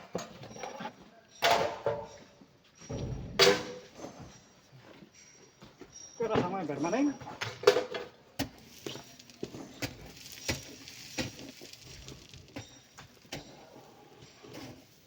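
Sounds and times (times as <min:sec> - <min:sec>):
stones knocking and clacking: 0:08.4 - 0:13.8.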